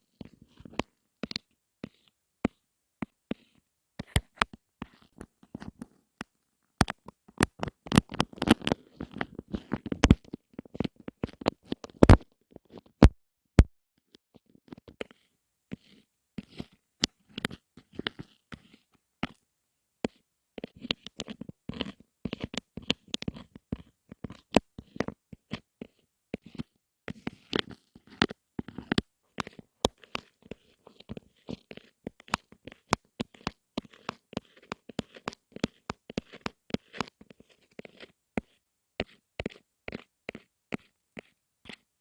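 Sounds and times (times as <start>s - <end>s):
tapping and clicking on objects: 4.0s - 13.1s.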